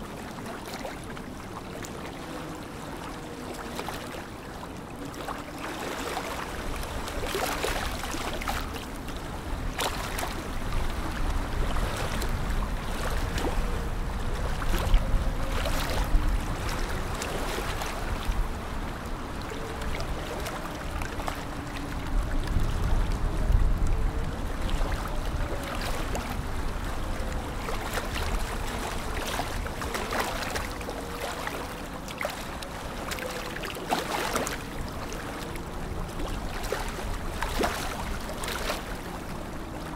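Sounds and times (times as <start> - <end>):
water lapping at shore: 0.0 - 39.9
wind gusting over microphone: 8.6 - 30.0.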